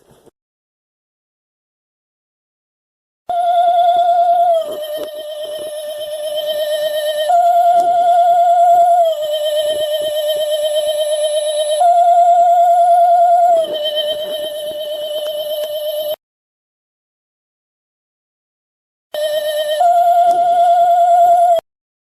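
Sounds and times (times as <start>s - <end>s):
wavering electronic spooky tone: 3.3s - 16.2s, 19.2s - 21.6s.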